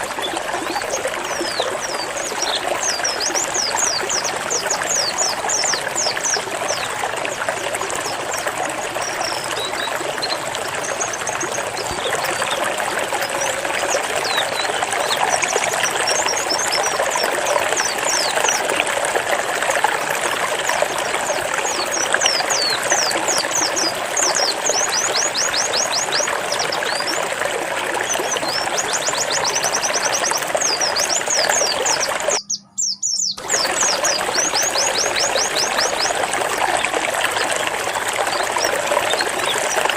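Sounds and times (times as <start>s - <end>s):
running water: 0.0s - 39.9s
bird singing rapid high notes: 28.1s - 36.2s.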